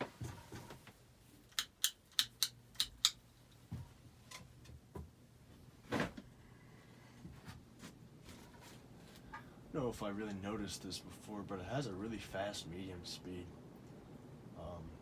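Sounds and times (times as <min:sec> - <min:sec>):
ceiling fan motor hum: 0:00.0 - 0:15.0.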